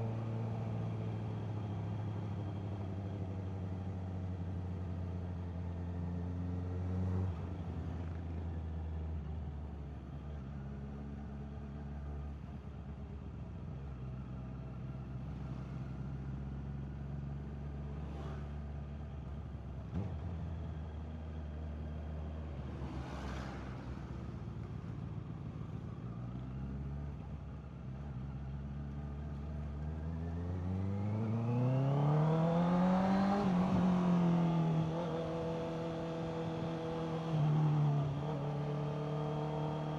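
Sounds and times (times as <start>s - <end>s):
motorcycle engine revving: 30.1s - 39.9s.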